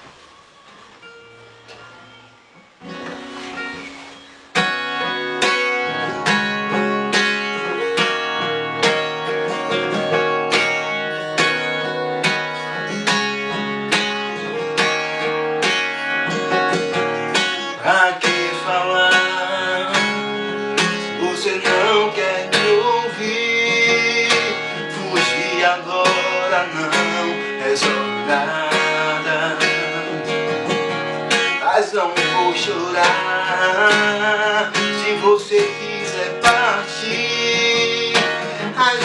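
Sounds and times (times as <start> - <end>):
acoustic guitar strumming chords: 0.0 - 39.0.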